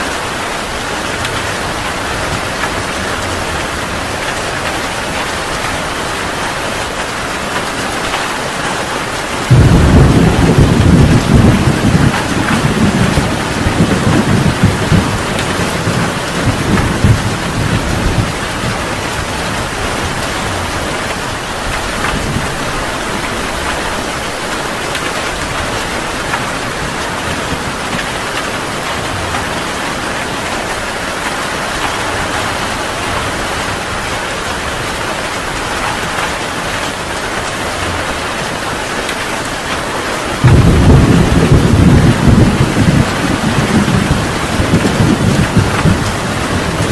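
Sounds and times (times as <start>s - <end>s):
heavy rain falling: 0.0s - 46.9s
thunder rumbling: 9.4s - 36.3s, 40.3s - 46.9s
loud peal of thunder: 9.5s - 18.8s, 40.4s - 46.9s.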